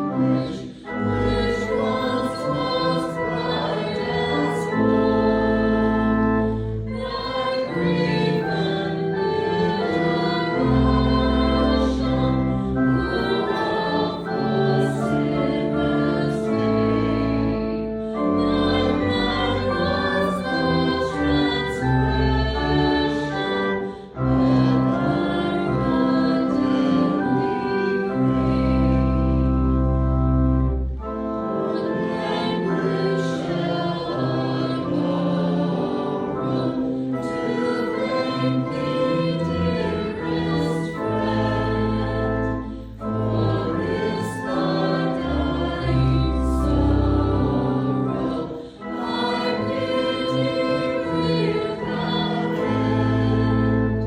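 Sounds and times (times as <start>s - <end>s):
choir singing a hymn: 0.0s - 54.0s
organ: 0.0s - 54.0s.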